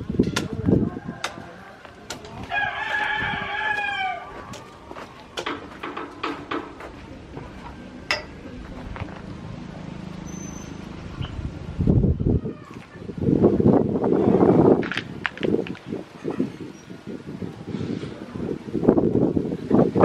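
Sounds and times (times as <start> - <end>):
rooster crowing: 0.8 - 4.8
sharp knocks and clicks: 5.4 - 6.9.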